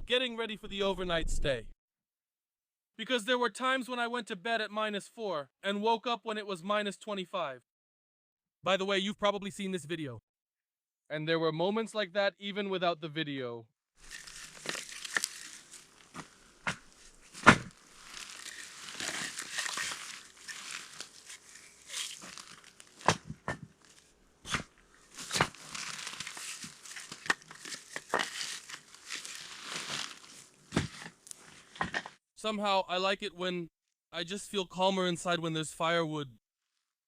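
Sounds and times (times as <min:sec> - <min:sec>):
crinkly rustling: 0:14.0 - 0:24.2, 0:24.8 - 0:31.8.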